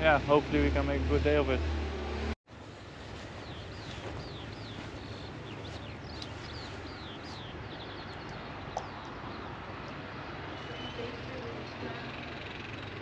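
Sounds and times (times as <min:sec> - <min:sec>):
steady background noise: 0:02.5 - 0:13.0
bird singing: 0:03.4 - 0:13.0.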